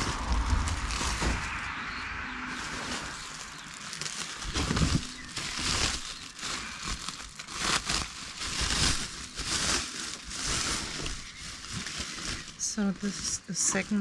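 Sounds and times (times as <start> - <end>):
clothes rustling: 0.0 - 14.0.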